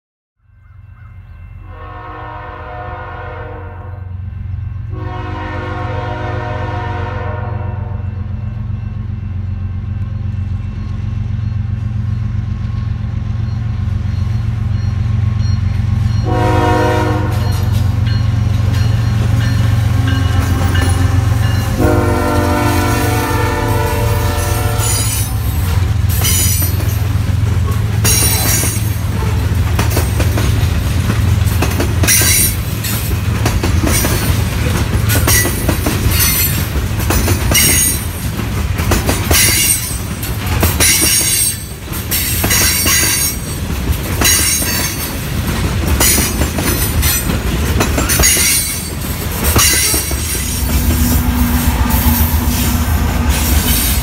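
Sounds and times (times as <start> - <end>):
train chime horn blasts: 0.4 - 8.8, 15.5 - 26.7, 49.6 - 54.0.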